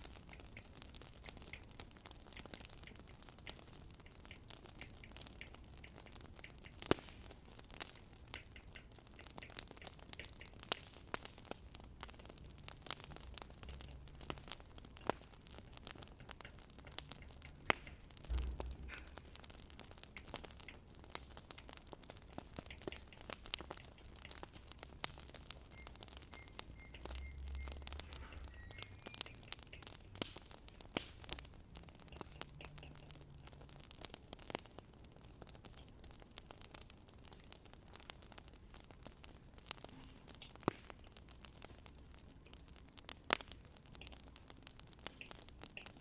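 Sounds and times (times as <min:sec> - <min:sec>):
wood fire crackling: 0:00.0 - 0:46.0
low dull thud: 0:18.3 - 0:18.8.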